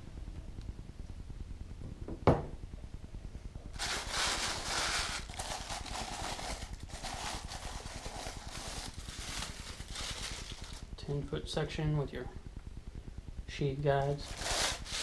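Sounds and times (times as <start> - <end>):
packaging rustling: 3.8 - 11.0, 14.1 - 15.0.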